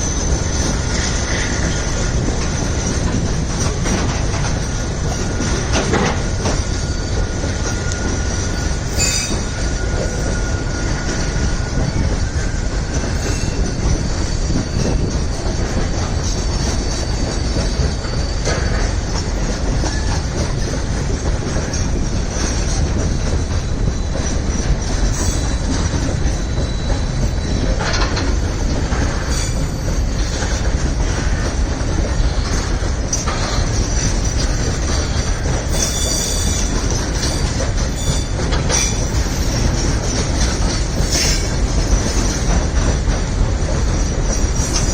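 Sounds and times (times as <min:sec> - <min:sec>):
train wheels rumbling on rails: 0:00.0 - 0:44.9
high wheel squeal: 0:05.1 - 0:19.0, 0:21.6 - 0:31.4, 0:32.1 - 0:39.8, 0:40.4 - 0:42.5.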